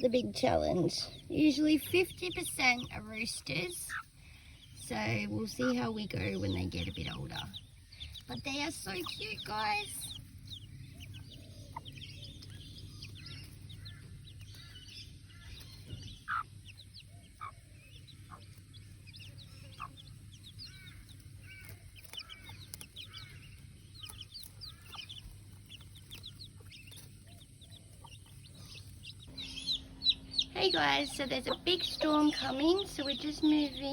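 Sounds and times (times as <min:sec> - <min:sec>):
chicks peeping: 0:00.0 - 0:33.9
hen clucking: 0:00.0 - 0:33.9.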